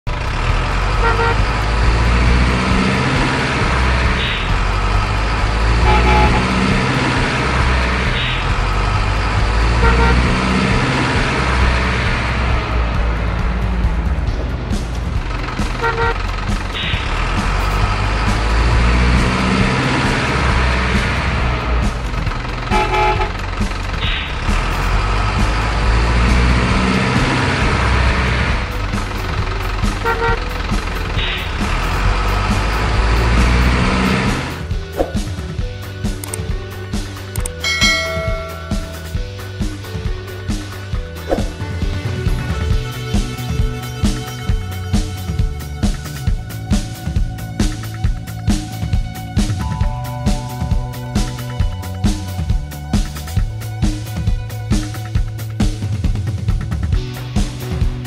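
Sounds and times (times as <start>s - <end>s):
truck engine rumble: 0.0s - 58.0s
truck horn toots: 0.1s - 12.8s, 15.2s - 34.7s, 37.6s - 39.4s.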